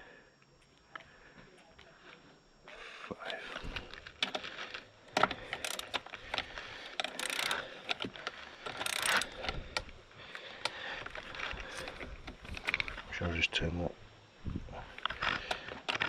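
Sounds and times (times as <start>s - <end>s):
torque wrench ratchet clicking: 5.2s - 9.9s.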